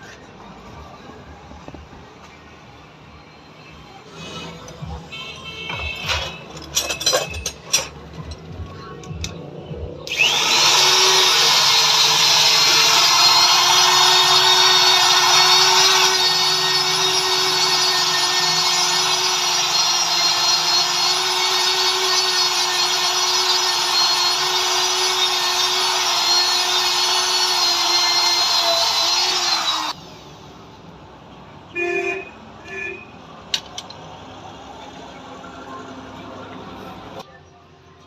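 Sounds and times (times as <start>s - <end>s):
high-speed power tool whining: 10.1s - 30.3s.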